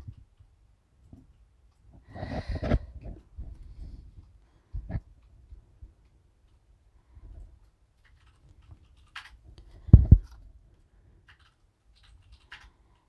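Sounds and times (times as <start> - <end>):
light clicks and rustles: 7.3 - 13.0.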